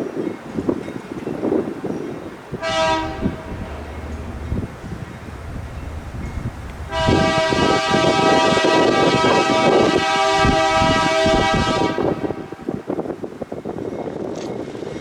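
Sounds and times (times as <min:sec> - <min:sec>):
wind on the microphone: 0:00.0 - 0:15.0
locomotive air horn: 0:02.5 - 0:12.9.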